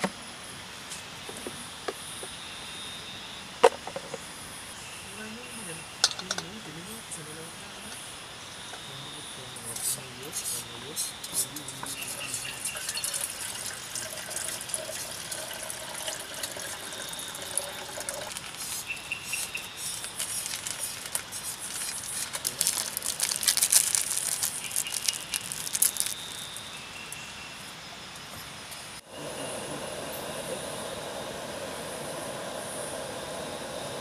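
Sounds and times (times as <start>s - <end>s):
water pouring into metal pot: 11.9s - 18.6s.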